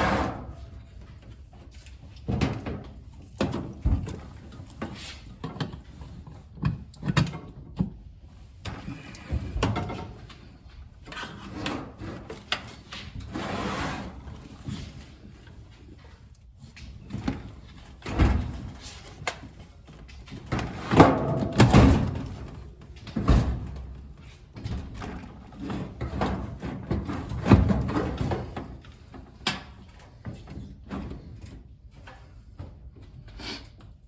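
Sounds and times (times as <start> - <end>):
metal dryer scraping and knocking: 20.4 - 23.7.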